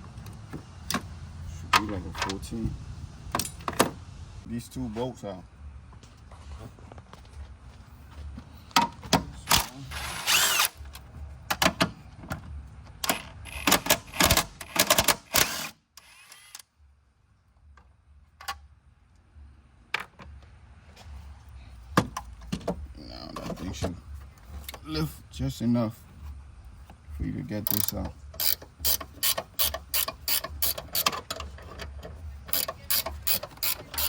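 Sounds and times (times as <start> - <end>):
power tool bursts: 9.9 - 10.8.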